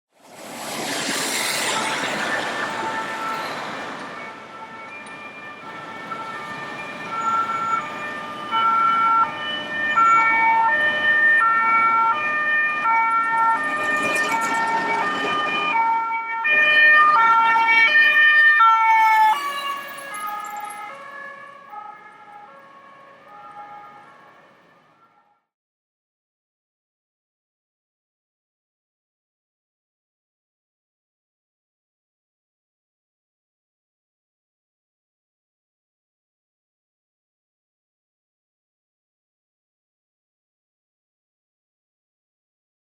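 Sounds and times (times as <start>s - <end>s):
traffic rushing: 0.2s - 24.9s
fire engine two-tone siren: 1.0s - 25.5s.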